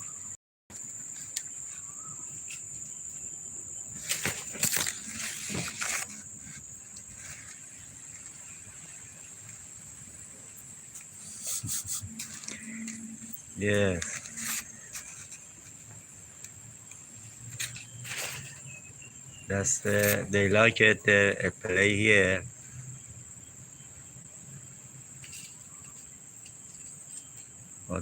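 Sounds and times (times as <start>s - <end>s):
insect chorus: 0.0s - 28.0s
rustling bursts: 3.9s - 15.9s.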